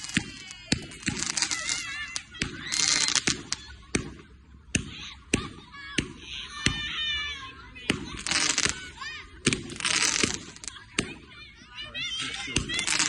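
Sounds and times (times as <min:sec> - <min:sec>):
fireworks crackling hiss: 0:00.0 - 0:04.4, 0:07.9 - 0:11.0, 0:12.2 - 0:13.0
fireworks bangs: 0:00.0 - 0:11.4, 0:12.1 - 0:13.0.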